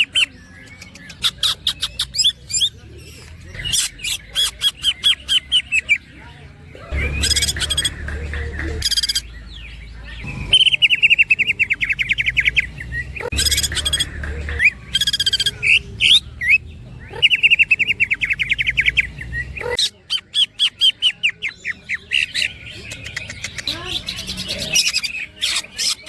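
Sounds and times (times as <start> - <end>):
bird singing trills and buzzy calls: 6.9 - 26.0.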